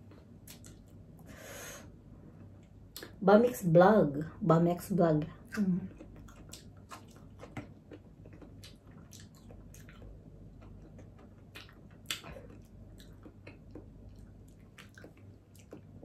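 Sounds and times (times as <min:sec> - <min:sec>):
person chewing wetly: 0:00.1 - 0:01.1, 0:05.5 - 0:16.0.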